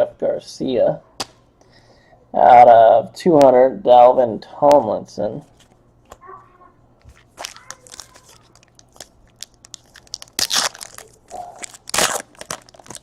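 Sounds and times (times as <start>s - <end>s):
card pack wrappers crinkling: 7.0s - 13.0s.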